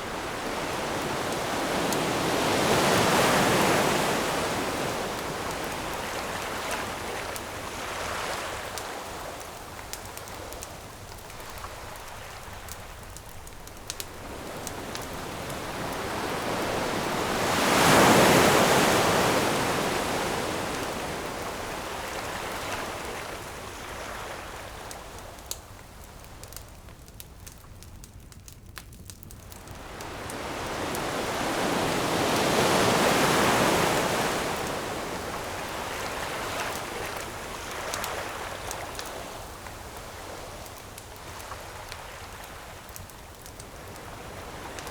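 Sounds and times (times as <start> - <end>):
ocean waves breaking on shore: 0.0 - 25.4, 29.6 - 44.9
campfire crackling and popping: 4.0 - 17.4, 24.6 - 31.4, 34.6 - 44.9.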